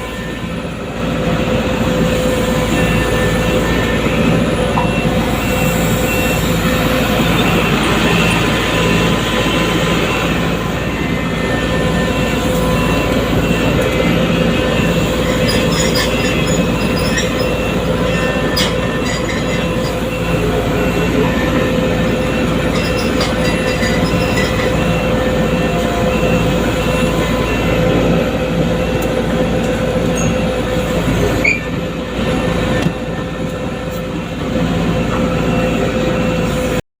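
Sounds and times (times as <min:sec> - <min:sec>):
excavator engine running: 0:00.0 - 0:36.8
excavator whine: 0:00.0 - 0:36.8.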